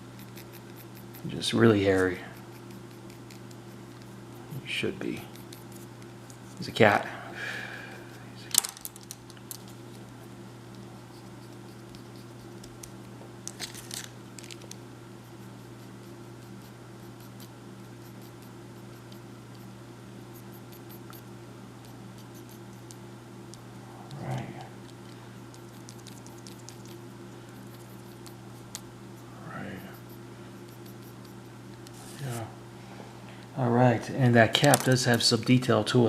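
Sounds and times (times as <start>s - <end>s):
low electrical hum: 0.0s - 36.0s
drawing tool scratching paper: 29.7s - 31.5s.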